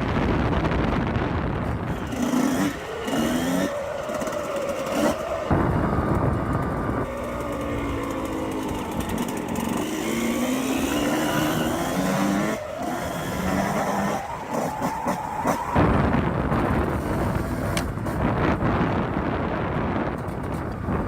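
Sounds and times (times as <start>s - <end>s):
rushing wind: 0.0s - 21.0s
dirt bike engine revving: 1.8s - 18.6s.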